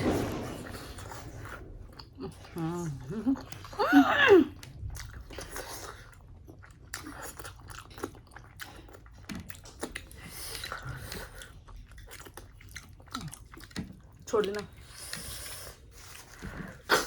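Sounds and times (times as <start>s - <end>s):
person chewing with mouth smacks: 4.5s - 17.0s.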